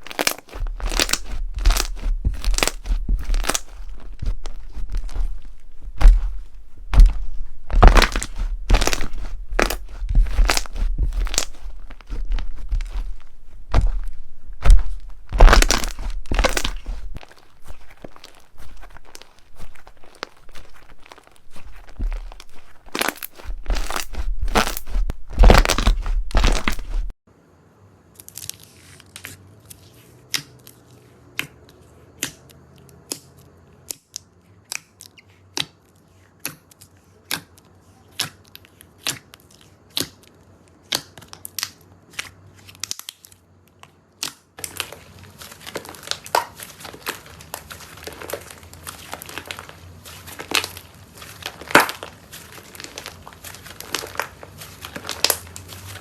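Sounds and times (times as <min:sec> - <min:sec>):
slime squeezed crackling: 0:00.0 - 0:27.1, 0:44.6 - 0:56.0.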